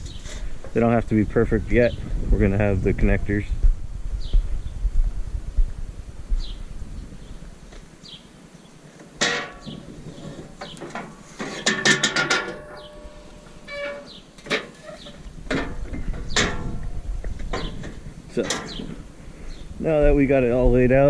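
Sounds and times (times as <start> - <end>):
metal ramps knocking and clanking: 9.2 - 19.0.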